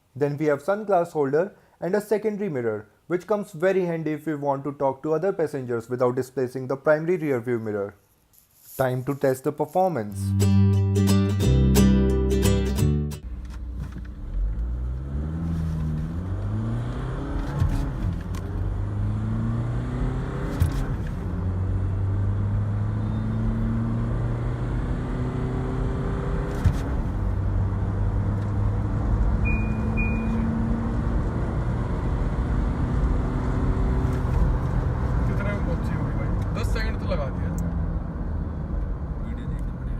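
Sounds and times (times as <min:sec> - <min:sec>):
diesel engine accelerating: 0:13.4 - 0:39.9
short high beeps: 0:29.4 - 0:30.6.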